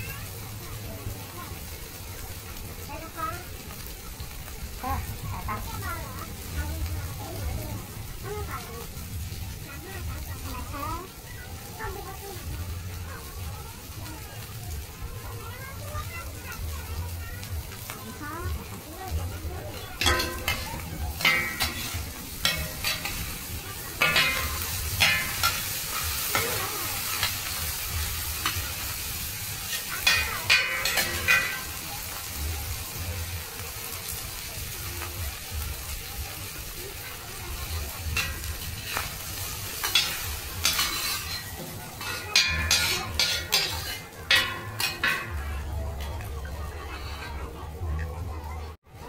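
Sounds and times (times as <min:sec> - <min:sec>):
food sizzling on a griddle: 0:00.0 - 0:49.0
metal spatulas scraping a pan: 0:19.7 - 0:32.8, 0:36.9 - 0:47.5.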